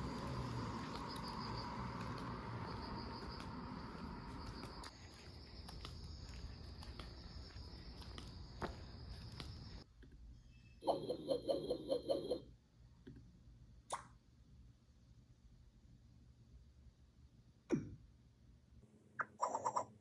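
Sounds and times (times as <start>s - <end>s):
high insect chirping: 0.0s - 9.8s.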